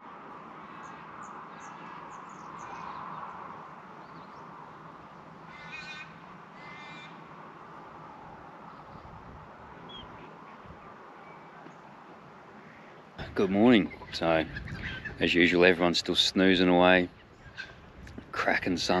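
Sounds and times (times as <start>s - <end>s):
steady background hiss: 0.0s - 19.0s
harsh buzzy bird calls: 0.6s - 7.3s, 9.8s - 11.9s, 12.5s - 18.0s.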